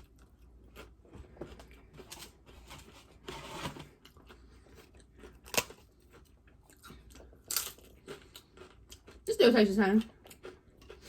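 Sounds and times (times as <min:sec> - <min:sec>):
crunching crisp tostada shell: 0:05.0 - 0:09.2.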